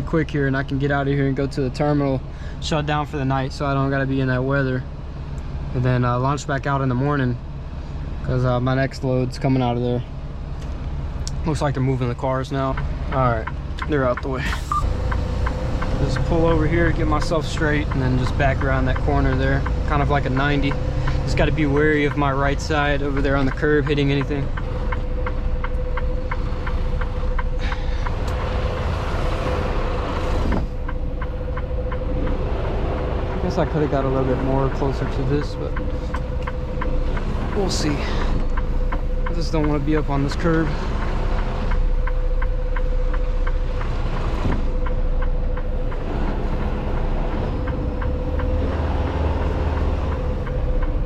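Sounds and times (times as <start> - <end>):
engine and road noise: 0.0 - 51.0
truck engine hum: 0.0 - 51.0
light ticking: 10.5 - 51.0.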